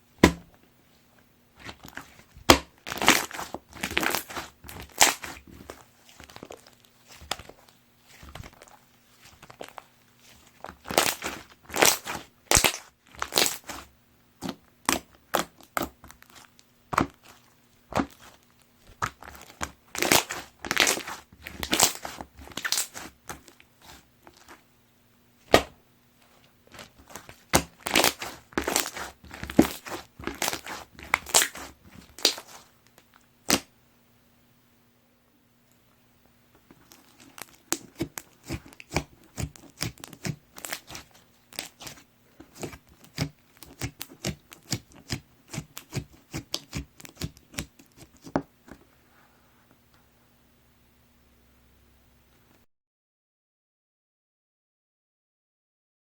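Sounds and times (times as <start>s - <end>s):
slime squished by hand: 1.6s - 24.6s, 26.7s - 33.7s, 36.7s - 48.3s.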